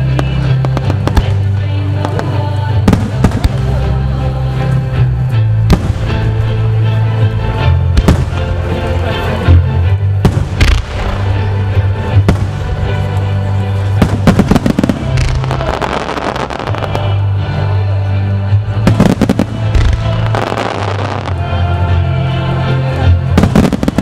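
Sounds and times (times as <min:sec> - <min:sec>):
firework crackling: 0:00.0 - 0:05.0, 0:10.2 - 0:17.8, 0:18.8 - 0:21.9, 0:23.4 - 0:24.0
music with low bass notes: 0:00.0 - 0:24.0.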